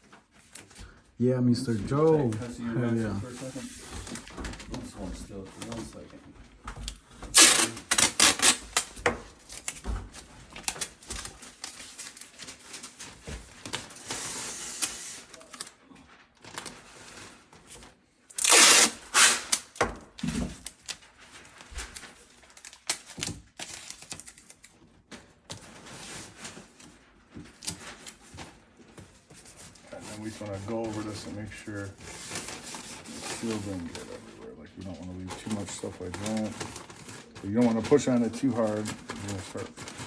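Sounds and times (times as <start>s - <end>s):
tape rustling: 0.0s - 1.0s, 1.6s - 40.0s
masking tape tearing off roll: 7.3s - 9.8s, 13.7s - 15.7s, 18.3s - 21.0s.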